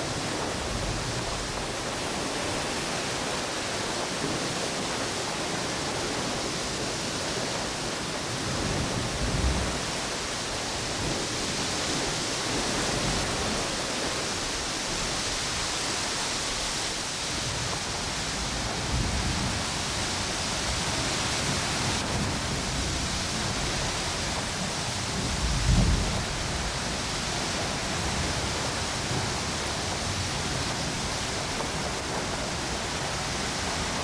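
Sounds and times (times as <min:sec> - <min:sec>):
ocean waves washing on beach: 0:00.0 - 0:34.0
strong wind gusts: 0:00.0 - 0:34.0.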